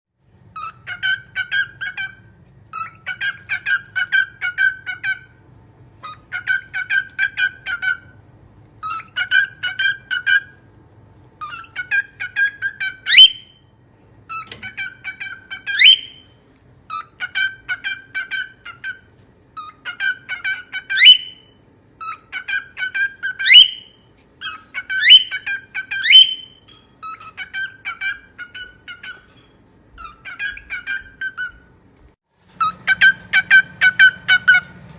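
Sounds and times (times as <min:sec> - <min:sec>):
parrot chattering calls: 0:00.5 - 0:05.4, 0:06.0 - 0:08.2, 0:08.8 - 0:10.6, 0:11.4 - 0:13.6, 0:14.3 - 0:31.8, 0:32.6 - 0:34.8
parrot rising whistle: 0:11.4 - 0:13.6, 0:14.8 - 0:16.4, 0:19.9 - 0:26.6.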